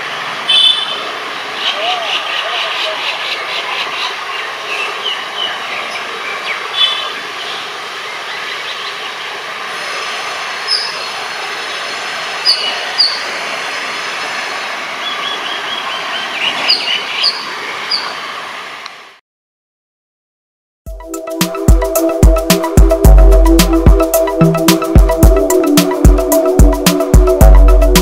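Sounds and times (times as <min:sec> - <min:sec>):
birds chirping: 0:00.5 - 0:09.5, 0:10.6 - 0:13.4, 0:14.6 - 0:18.2.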